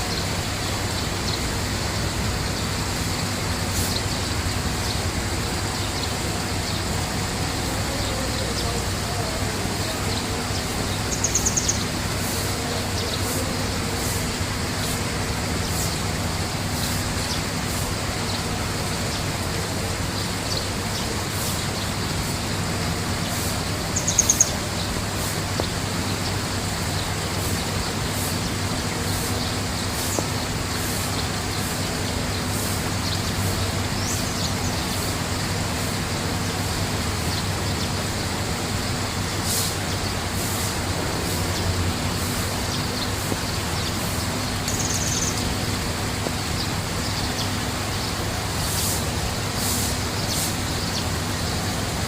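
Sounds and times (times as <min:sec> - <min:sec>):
steady rushing noise: 0:00.0 - 0:52.0
small bird trilling: 0:11.0 - 0:13.3, 0:23.3 - 0:24.9, 0:43.8 - 0:45.6.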